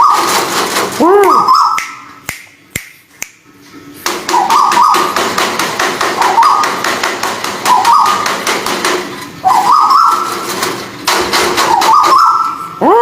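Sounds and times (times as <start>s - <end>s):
bird calls warbling: 4.3s - 5.2s, 6.2s - 6.8s, 7.7s - 8.3s, 9.4s - 10.4s, 11.7s - 12.8s.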